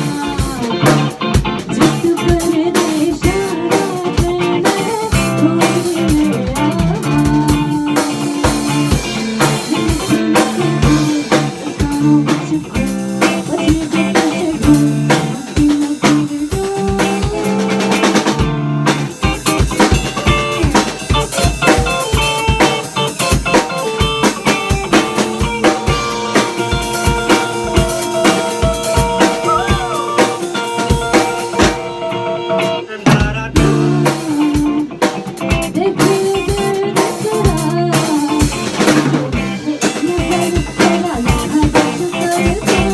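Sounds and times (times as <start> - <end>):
bass guitar: 0.0 - 42.9
drum kit beat: 0.0 - 42.9
guitar: 0.0 - 42.9.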